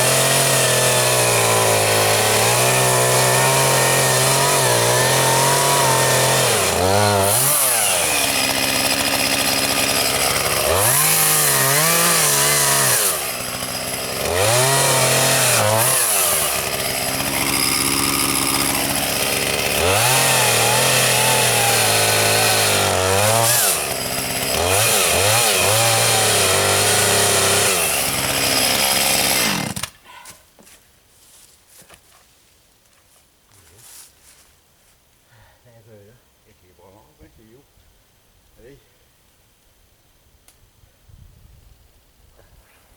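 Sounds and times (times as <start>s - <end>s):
chainsaw cutting wood: 0.0s - 30.0s.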